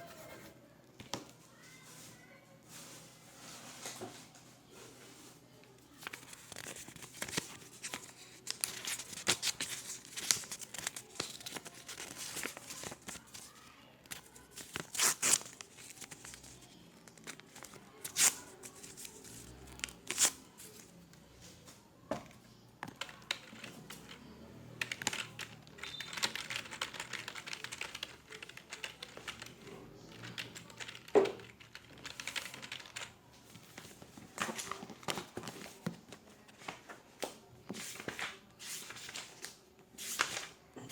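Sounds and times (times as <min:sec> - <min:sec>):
rustling and scraping: 0:01.7 - 0:05.4.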